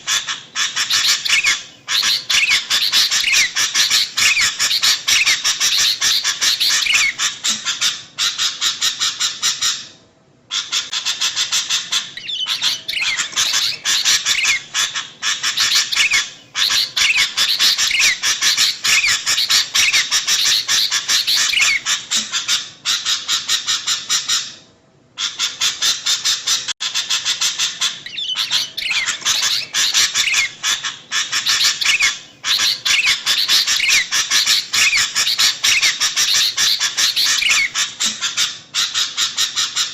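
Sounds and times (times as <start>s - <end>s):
bulbuls chattering: 0.0s - 7.3s, 27.7s - 38.4s.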